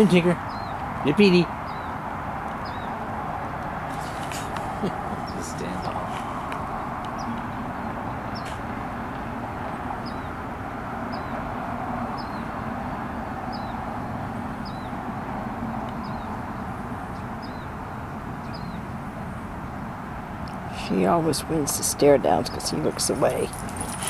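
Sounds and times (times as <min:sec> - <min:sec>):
outdoor background rumble: 0:00.0 - 0:24.0
small bird chirping: 0:00.4 - 0:00.9, 0:02.6 - 0:03.0, 0:09.6 - 0:10.4, 0:11.1 - 0:11.5, 0:12.2 - 0:12.6, 0:15.9 - 0:18.9.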